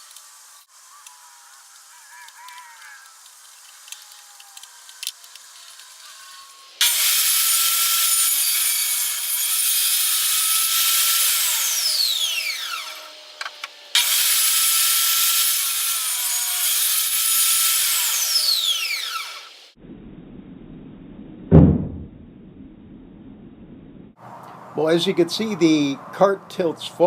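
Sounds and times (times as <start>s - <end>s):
power tool cutting plywood: 6.0s - 19.7s.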